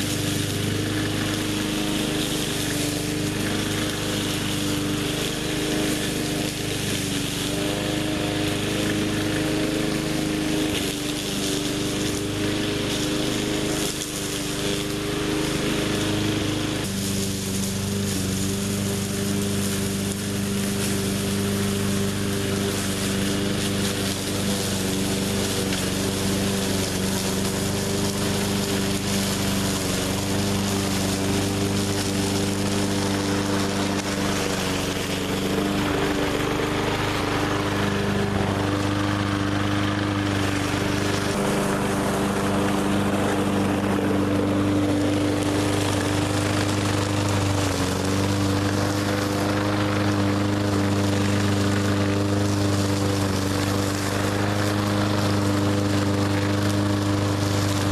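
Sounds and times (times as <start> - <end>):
lawn mower engine running: 0.0 - 57.9.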